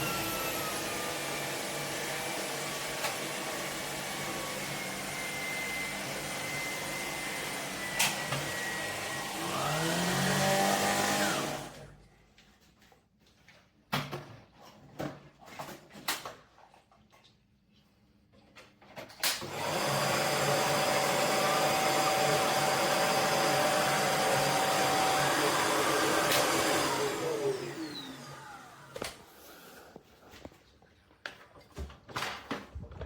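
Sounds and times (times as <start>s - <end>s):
vacuum cleaner motor: 0.0s - 12.0s, 19.3s - 30.0s.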